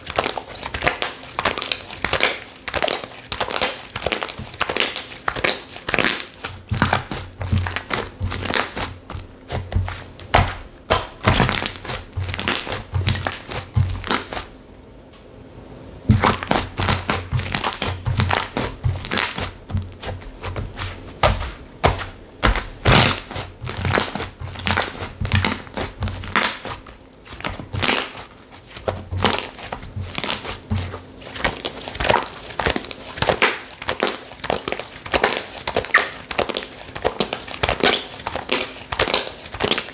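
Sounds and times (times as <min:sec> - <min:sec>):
slime squeezed by hand crackling: 0:16.1 - 0:30.7, 0:31.3 - 0:39.9.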